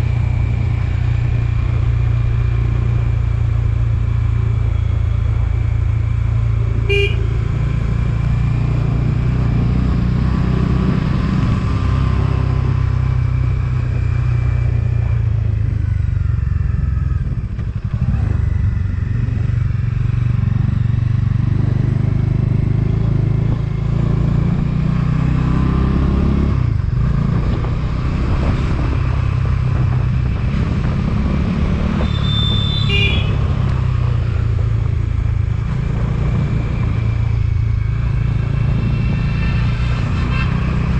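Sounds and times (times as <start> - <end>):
motorcycle engine running: 0.0 - 11.6, 12.5 - 24.8, 25.9 - 40.9
short horn beep: 6.8 - 7.4, 32.0 - 33.4.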